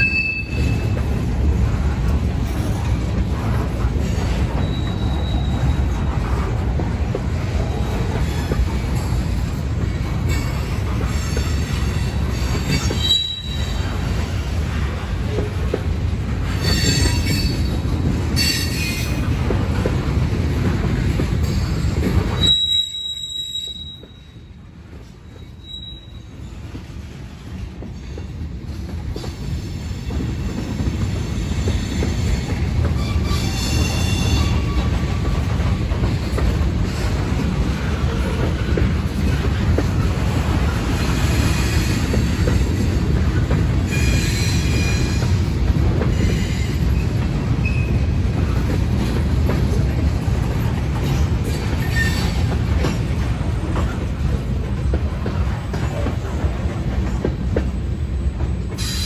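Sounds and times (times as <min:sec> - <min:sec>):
train wheels rumbling on rails: 0:00.0 - 0:59.0
wheel squeal: 0:04.5 - 0:05.9, 0:12.6 - 0:13.8, 0:22.3 - 0:24.3, 0:25.4 - 0:26.6, 0:51.8 - 0:52.5.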